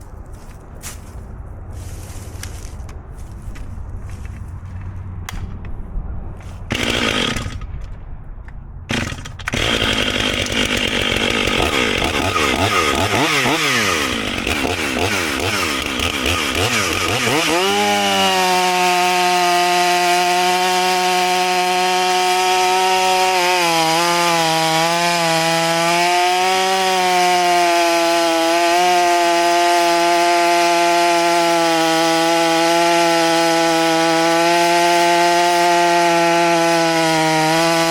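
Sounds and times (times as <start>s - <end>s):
chainsaw running and cutting log: 6.7s - 7.7s, 8.9s - 37.9s.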